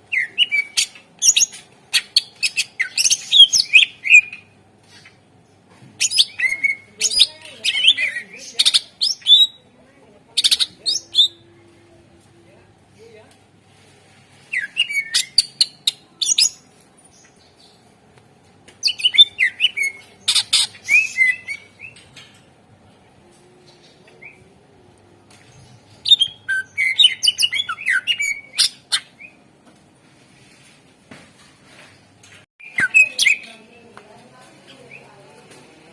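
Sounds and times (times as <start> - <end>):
bird singing whistled notes: 0.1 - 1.4, 26.0 - 29.4, 32.6 - 33.5.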